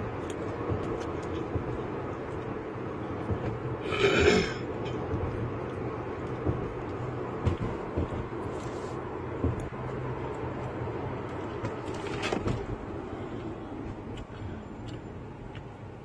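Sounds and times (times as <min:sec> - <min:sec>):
vehicle and road noise: 0:00.0 - 0:16.0.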